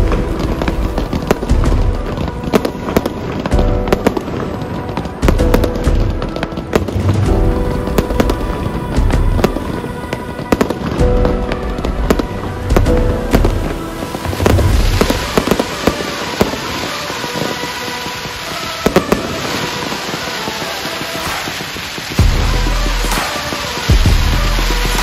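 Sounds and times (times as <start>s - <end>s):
fireworks hissing: 0.0s - 25.0s
fireworks popping and banging: 0.0s - 25.0s
low rumble: 11.1s - 15.4s.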